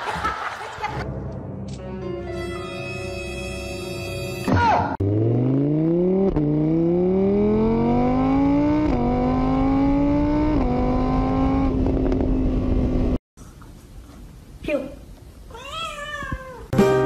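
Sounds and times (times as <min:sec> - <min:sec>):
motorbike engine accelerating: 0:05.0 - 0:13.2.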